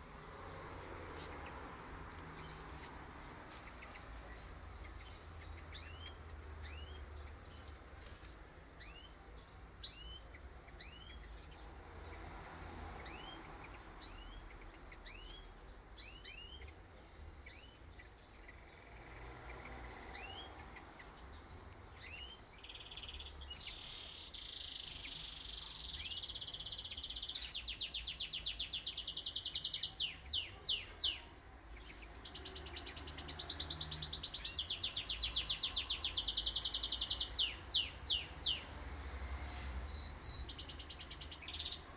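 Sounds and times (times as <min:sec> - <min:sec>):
songbirds chirping: 0:00.0 - 0:41.9
bird warbling song with trills: 0:22.0 - 0:41.8.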